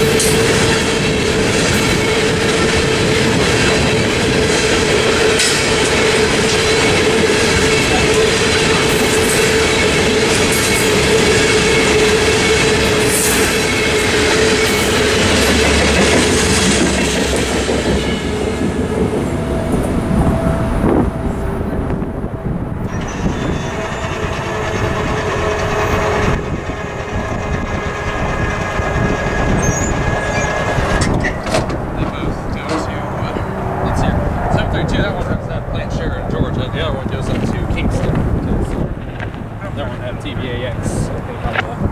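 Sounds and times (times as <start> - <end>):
freight cars rattling: 0.0 - 41.9
wheel squeal: 22.8 - 31.6.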